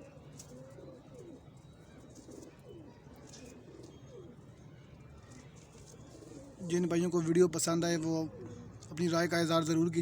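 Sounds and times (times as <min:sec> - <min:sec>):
pigeons cooing: 0:00.0 - 0:04.7, 0:05.8 - 0:07.0, 0:07.9 - 0:08.8.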